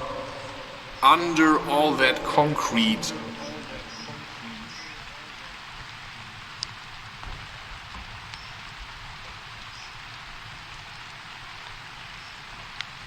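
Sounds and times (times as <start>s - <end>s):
rain-like hiss: 0.0s - 13.0s
faint high chirps and ticks: 8.2s - 8.9s.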